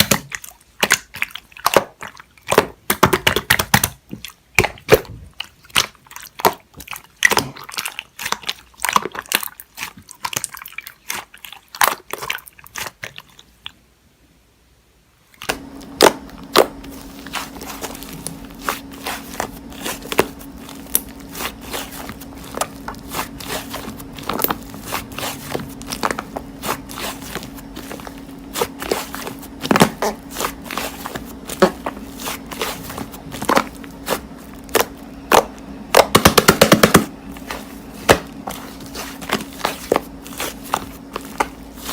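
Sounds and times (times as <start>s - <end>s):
steady low hum: 15.5s - 41.9s.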